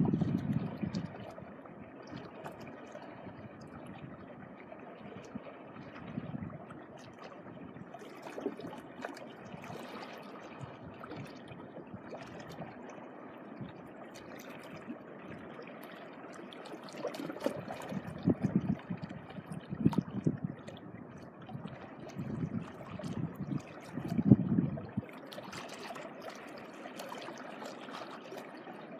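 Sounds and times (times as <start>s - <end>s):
small waves lapping at shore: 0.0s - 28.9s
small splashes: 6.9s - 13.0s, 13.6s - 20.9s, 25.0s - 28.9s.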